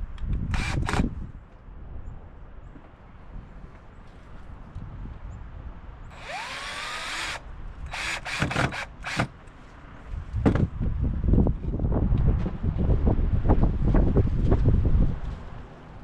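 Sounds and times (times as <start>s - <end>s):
power drill whining: 0.6s - 1.0s, 6.1s - 9.3s.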